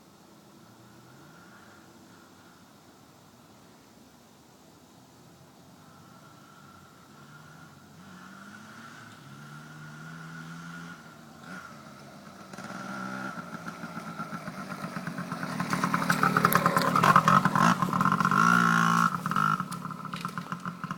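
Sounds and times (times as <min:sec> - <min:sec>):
dirt bike engine under throttle: 0:05.8 - 0:20.9.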